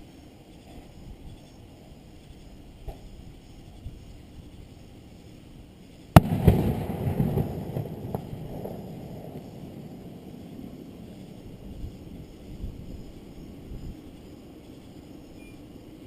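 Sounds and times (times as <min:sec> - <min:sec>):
small firework pops: 0:06.1 - 0:09.7
fireworks bangs: 0:06.1 - 0:11.7
rumbling echo: 0:06.2 - 0:12.4.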